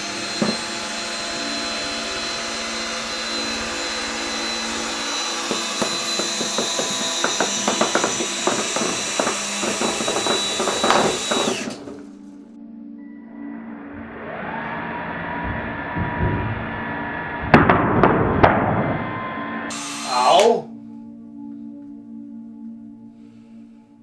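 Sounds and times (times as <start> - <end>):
power drill whining: 0.0 - 12.5, 13.7 - 17.5, 18.9 - 20.7
sharp irregular knocks: 0.3 - 0.8, 5.4 - 12.2.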